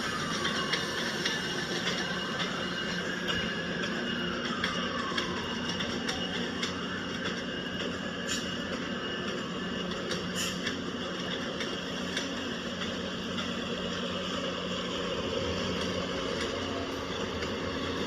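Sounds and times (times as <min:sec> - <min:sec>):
low train engine hum: 0:00.0 - 0:18.0
sharp clicks and clanks: 0:00.1 - 0:14.0.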